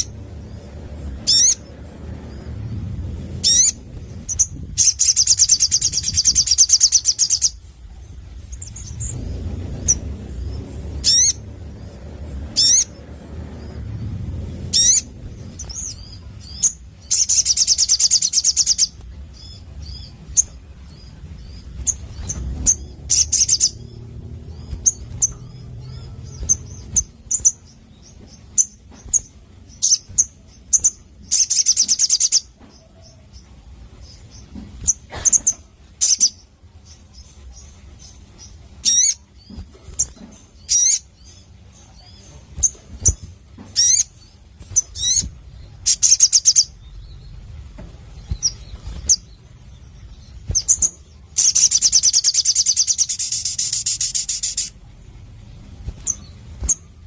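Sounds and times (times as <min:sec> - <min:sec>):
fast buzzy bird trills: 0:00.0 - 0:32.5.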